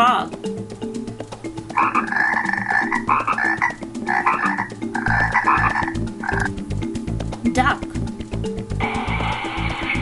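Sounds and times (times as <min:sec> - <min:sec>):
frog croaking: 0:01.7 - 0:06.6.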